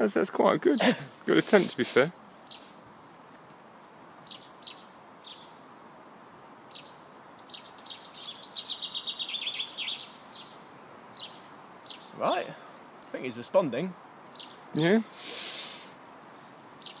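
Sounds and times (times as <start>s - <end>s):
bird song: 2.4s - 3.3s, 4.2s - 5.7s, 6.4s - 14.9s, 16.2s - 17.0s.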